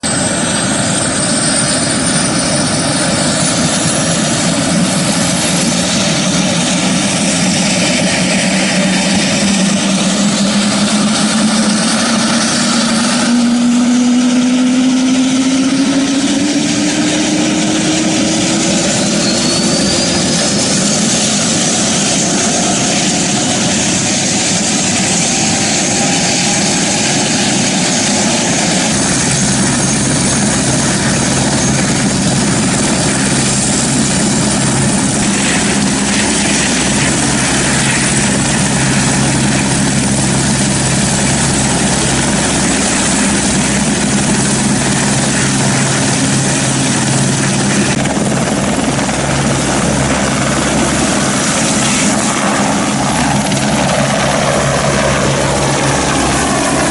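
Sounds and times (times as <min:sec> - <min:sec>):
aircraft roar overhead: 0:00.0 - 0:56.9
deep steady hum: 0:06.0 - 0:24.7.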